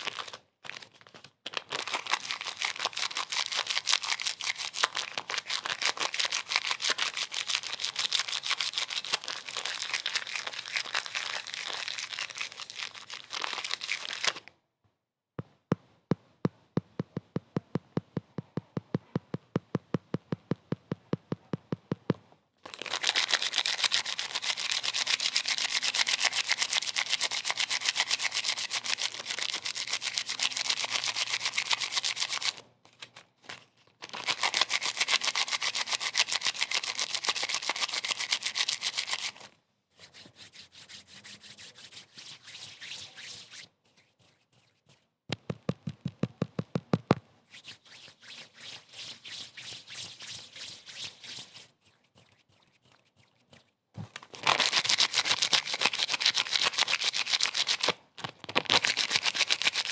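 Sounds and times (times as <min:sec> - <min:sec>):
fast rubbing strokes: 0:34.3 - 0:45.1, 0:47.5 - 0:53.8, 0:54.5 - 0:57.9.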